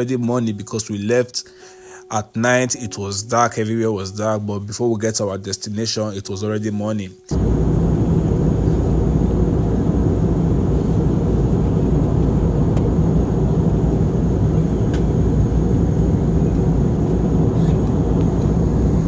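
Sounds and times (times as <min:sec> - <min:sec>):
jet cabin rumble: 0:07.3 - 0:19.0.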